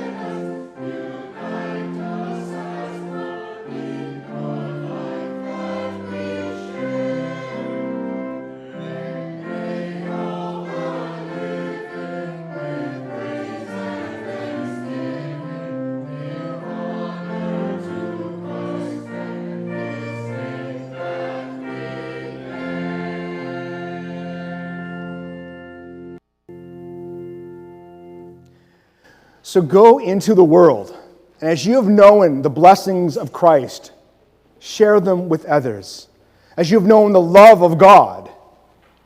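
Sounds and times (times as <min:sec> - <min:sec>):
congregation singing a hymn: 0:00.0 - 0:26.2, 0:29.4 - 0:33.8, 0:36.6 - 0:38.4
instrumental accompaniment: 0:00.0 - 0:29.1.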